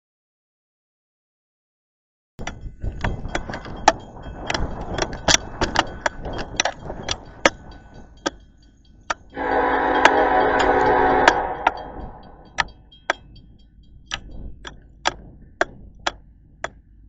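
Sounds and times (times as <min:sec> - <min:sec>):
sharp irregular train clacks: 0:02.4 - 0:17.0
passing train rumble: 0:02.5 - 0:14.1.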